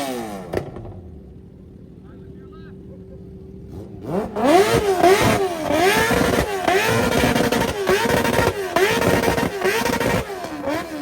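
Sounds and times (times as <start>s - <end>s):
car engine revving: 0.0s - 1.9s, 3.4s - 11.0s.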